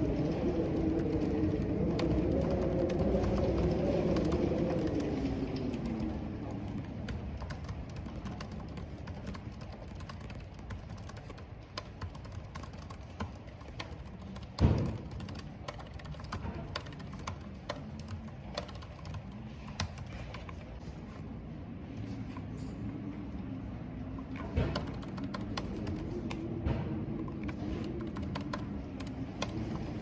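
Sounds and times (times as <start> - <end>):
rain: 0.0 - 8.7
computer keyboard typing: 0.0 - 21.2, 24.2 - 26.5, 27.2 - 30.0.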